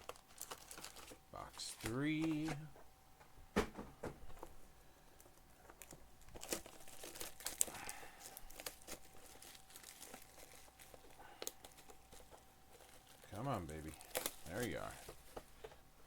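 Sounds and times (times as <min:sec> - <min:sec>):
plastic wrap crinkling and tearing: 0:00.0 - 0:02.4, 0:05.2 - 0:15.4
faint steady hum: 0:00.0 - 0:16.0.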